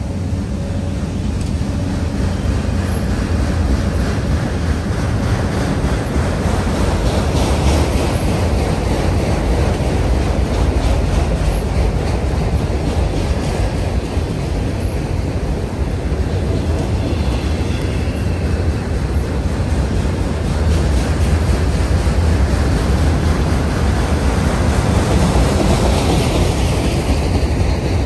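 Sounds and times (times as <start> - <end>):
steel wheels rumbling on rails: 0.0 - 28.0.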